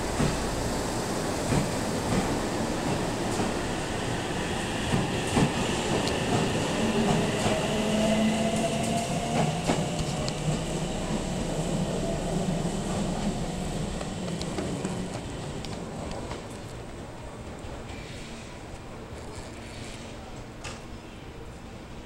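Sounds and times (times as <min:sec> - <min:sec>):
train wheels clacking over rail joints: 0:12.8 - 0:16.8.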